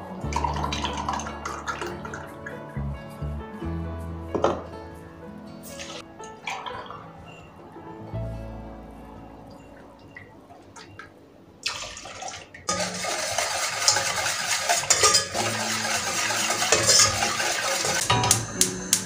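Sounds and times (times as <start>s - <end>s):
water running from tap: 11.6s - 18.6s.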